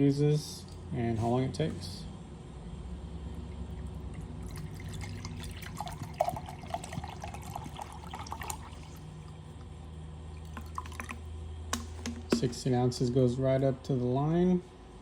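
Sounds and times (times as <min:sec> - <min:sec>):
water pouring into kettle: 0:03.7 - 0:09.3, 0:10.4 - 0:11.2.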